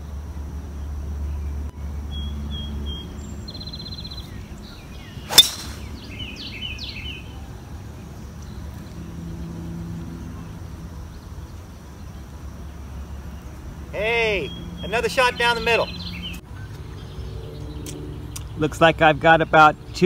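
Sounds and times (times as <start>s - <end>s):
birds chirping: 0.0s - 20.0s
golf club striking ball: 5.3s - 6.2s.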